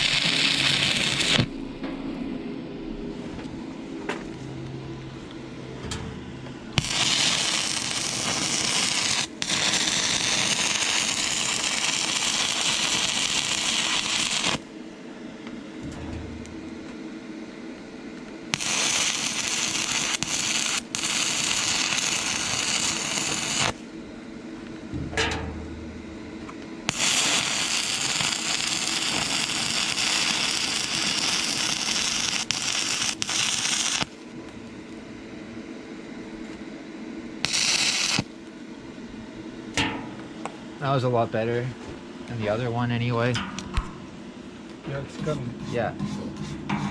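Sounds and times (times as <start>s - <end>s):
stick welding arc crackling: 0.0s - 1.8s, 5.2s - 14.7s, 17.8s - 23.9s, 24.6s - 34.3s, 37.4s - 38.6s.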